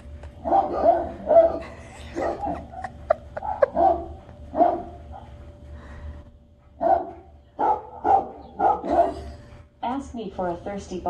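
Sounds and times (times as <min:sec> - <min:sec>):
recorded dog barks: 0:00.4 - 0:02.7, 0:03.4 - 0:05.3, 0:06.8 - 0:09.3.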